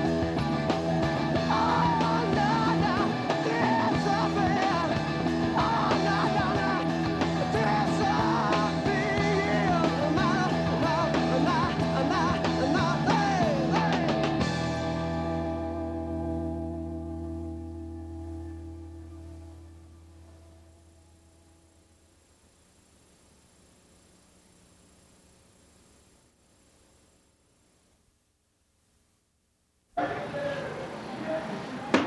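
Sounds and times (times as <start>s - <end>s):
rock band playing instrumental: 0.0s - 18.6s.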